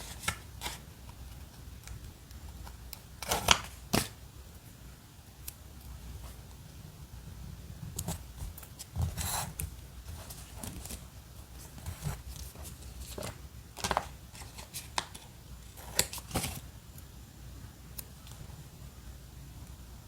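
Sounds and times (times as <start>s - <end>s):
paper rustling: 8.1s - 16.6s.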